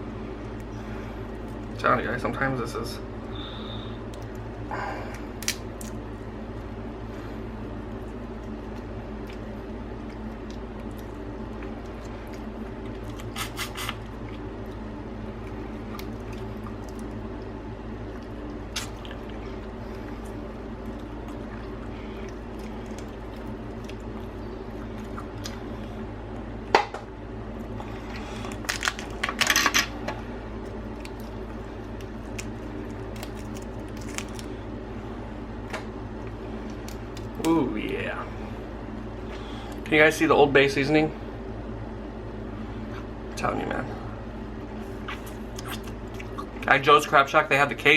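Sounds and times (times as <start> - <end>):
low background hum: 0.0 - 47.9
crab shells cracking: 5.1 - 6.0, 28.4 - 29.6, 30.6 - 34.5, 36.6 - 37.6
wet squishing: 7.8 - 26.0, 30.6 - 34.7, 44.9 - 46.7.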